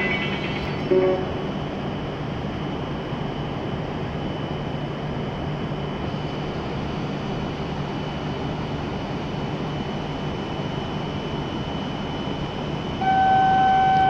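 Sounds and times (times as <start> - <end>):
constant high-pitched tone: 0.0 - 1.7, 6.2 - 14.0
train hum and rumble: 0.0 - 14.0.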